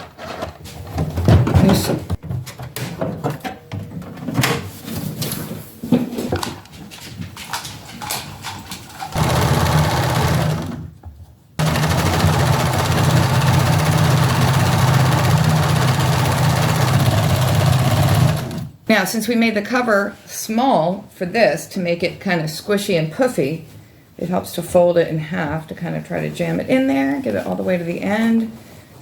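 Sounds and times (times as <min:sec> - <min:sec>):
sewing machine clicks and knocks: 0:08.8 - 0:10.9, 0:11.6 - 0:18.7
sewing machine motor stitching: 0:09.1 - 0:10.8, 0:11.6 - 0:18.7.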